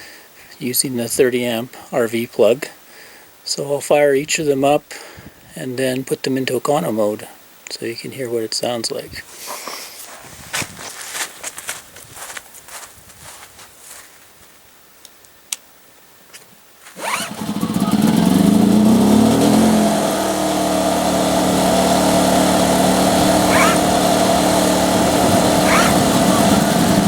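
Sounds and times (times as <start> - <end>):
generator engine running: 17.0 - 27.0.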